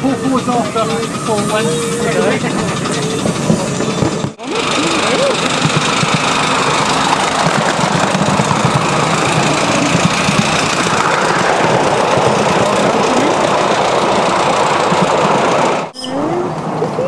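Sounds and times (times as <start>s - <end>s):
miniature steam train rumbling: 0.0s - 17.0s.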